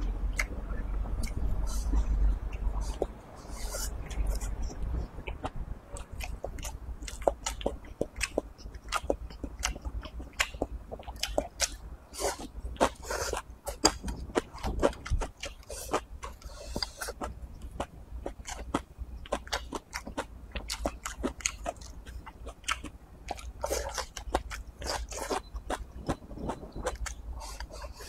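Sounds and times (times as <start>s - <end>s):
man chewing food: 0.0s - 28.0s.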